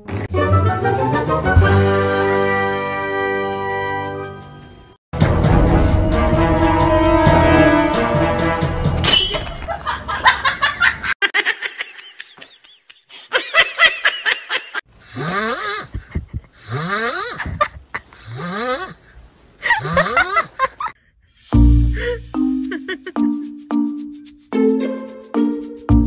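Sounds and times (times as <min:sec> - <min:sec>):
person laughing hard: 0:09.7 - 0:19.0, 0:19.6 - 0:21.0, 0:22.0 - 0:23.4
person giggling: 0:09.7 - 0:21.0, 0:22.0 - 0:23.5.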